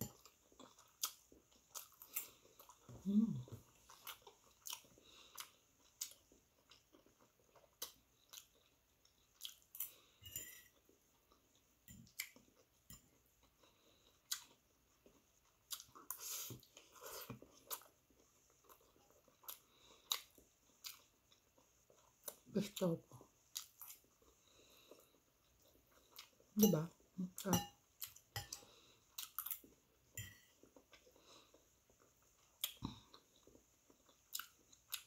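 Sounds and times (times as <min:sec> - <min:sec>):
chewing and mouth sounds: 0:00.0 - 0:10.2, 0:10.8 - 0:35.0.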